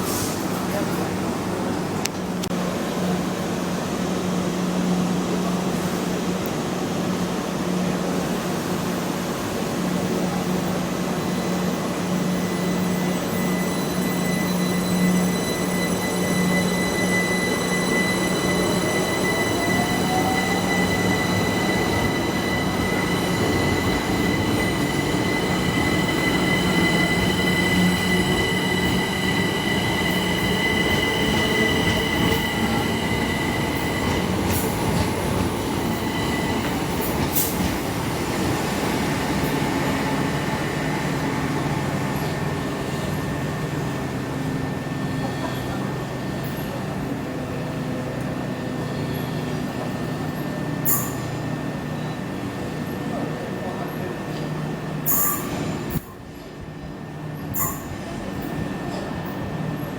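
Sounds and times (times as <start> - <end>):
train rumble: 0.0 - 59.9
high whining tones: 12.4 - 37.2.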